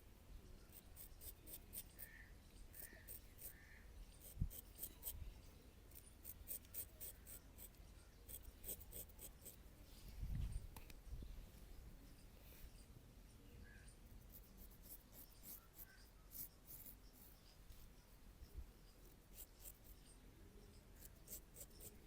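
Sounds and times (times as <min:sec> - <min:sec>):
razor scraping stubble: 0:00.7 - 0:03.6, 0:04.2 - 0:05.2, 0:05.9 - 0:09.6, 0:14.3 - 0:17.5, 0:19.0 - 0:20.1, 0:20.9 - 0:22.0.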